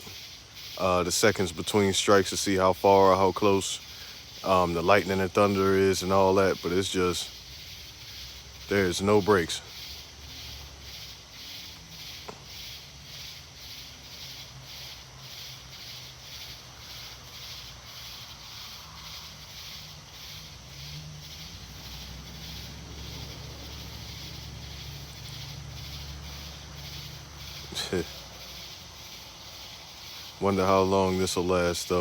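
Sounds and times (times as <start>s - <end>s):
night insects chirping: 0.0s - 32.0s.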